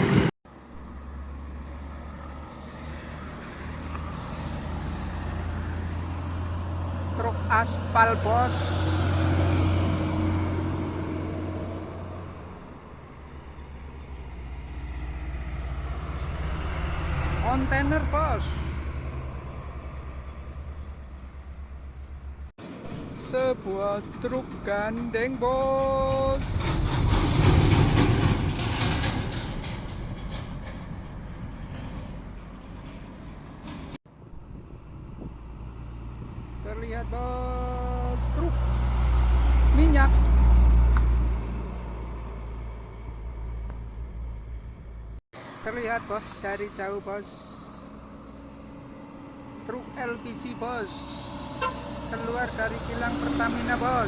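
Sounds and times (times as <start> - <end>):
heavy truck approaching: 0.0 - 54.0
heavy truck passing: 0.0 - 54.0
knocks and rattles: 24.1 - 34.0.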